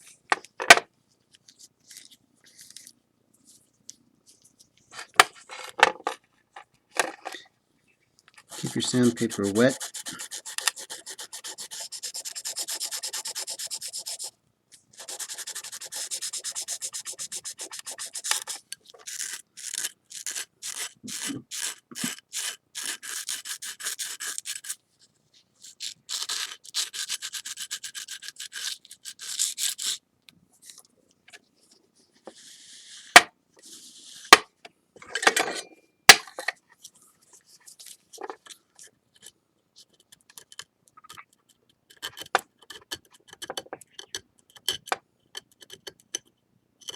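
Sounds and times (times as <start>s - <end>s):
sandpaper rubbing on ceramic: 8.5s - 14.3s, 15.0s - 24.8s, 25.7s - 30.0s.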